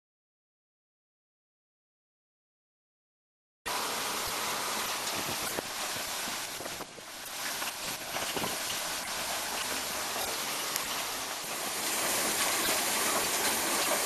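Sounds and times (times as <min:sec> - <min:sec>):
rushing water and sand: 0:03.7 - 0:14.0.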